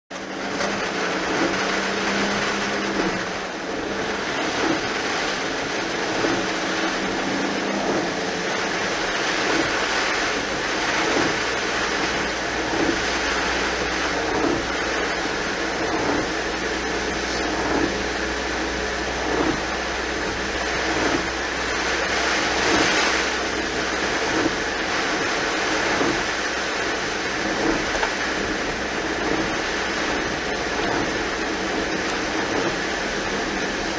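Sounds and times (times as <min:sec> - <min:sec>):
heavy rain hissing: 0:00.2 - 0:33.9.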